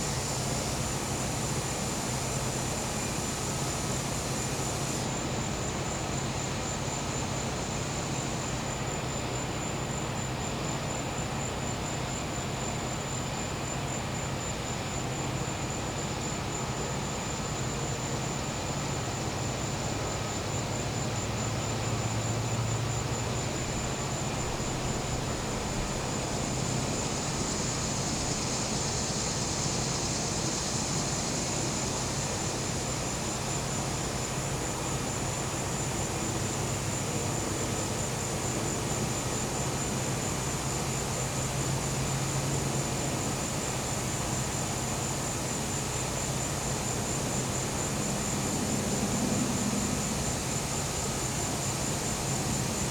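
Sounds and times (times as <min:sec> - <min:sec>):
pulsing insect trill: 0:20.5 - 0:52.9.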